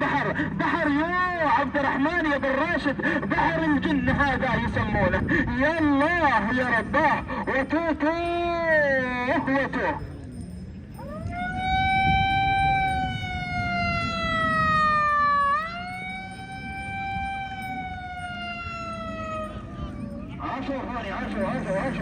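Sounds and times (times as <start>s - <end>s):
siren wailing: 11.0s - 22.0s.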